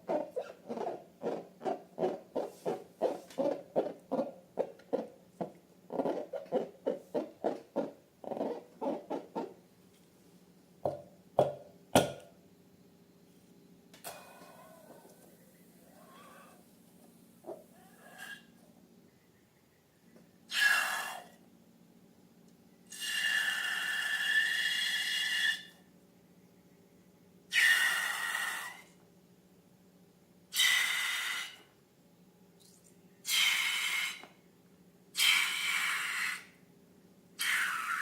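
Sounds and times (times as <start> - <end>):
air squealing out of balloon: 16.0 - 16.6.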